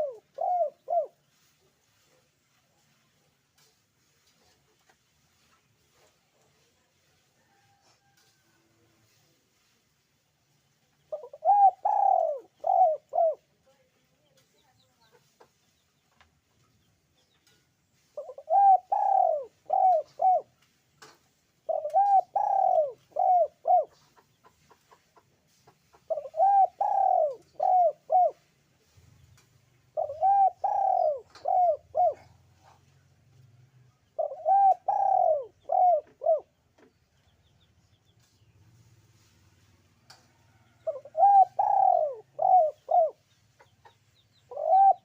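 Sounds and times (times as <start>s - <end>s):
dove cooing: 0.0s - 1.2s, 11.1s - 13.5s, 18.2s - 20.5s, 21.6s - 24.2s, 26.0s - 28.4s, 29.9s - 33.0s, 34.0s - 36.5s, 40.8s - 43.2s, 44.4s - 45.0s.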